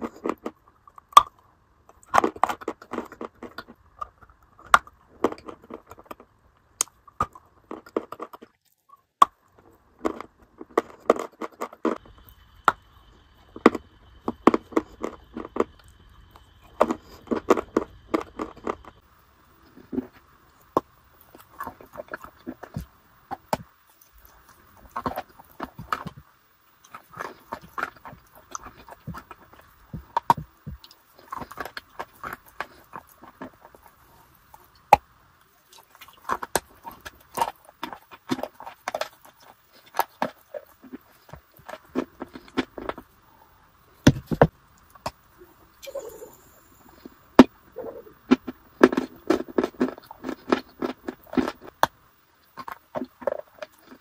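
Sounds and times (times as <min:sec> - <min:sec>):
crunching and chewing: 0:00.0 - 0:54.0.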